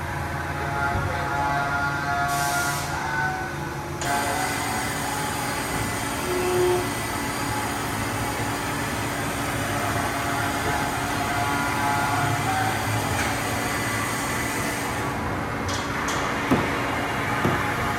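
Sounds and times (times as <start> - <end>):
machine hum with whining tones: 0.0 - 17.9.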